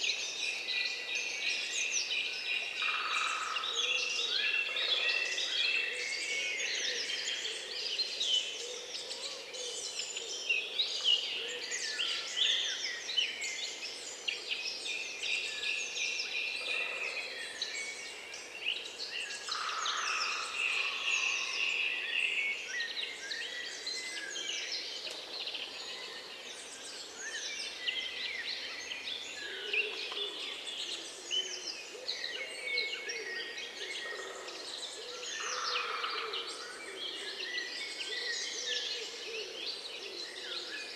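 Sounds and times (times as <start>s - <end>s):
chorus of songbirds chirping: 0.0s - 40.9s.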